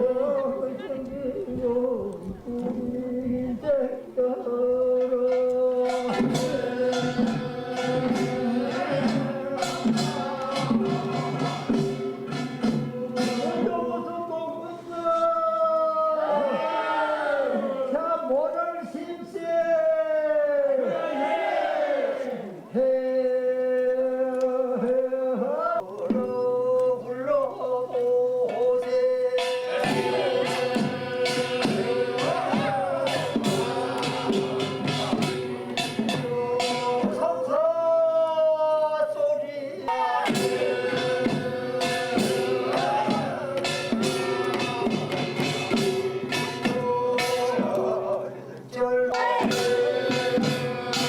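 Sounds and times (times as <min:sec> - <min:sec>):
traditional melody on one pitch: 0:00.0 - 0:14.3, 0:28.5 - 0:37.2, 0:40.0 - 0:48.1, 0:49.1 - 0:51.0
man singing long notes: 0:00.0 - 0:16.6, 0:22.7 - 0:51.0
percussion beat: 0:04.9 - 0:14.2, 0:28.4 - 0:37.7, 0:39.9 - 0:51.0.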